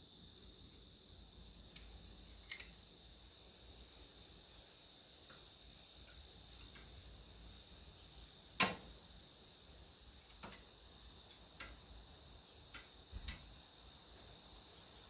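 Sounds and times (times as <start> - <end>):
sharp clicks and knocks: 8.6 - 8.9.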